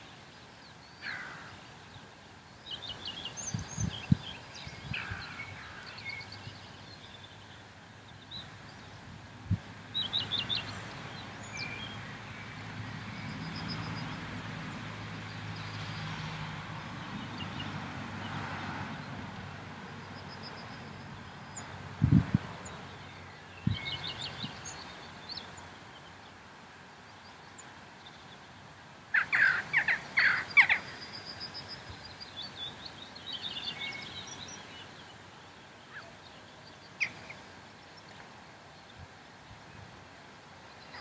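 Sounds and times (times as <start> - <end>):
loud bird calls: 0.0 - 9.0, 29.1 - 38.3
birds chirping and trilling: 0.0 - 9.1, 9.8 - 14.3, 20.0 - 39.0, 40.6 - 41.0.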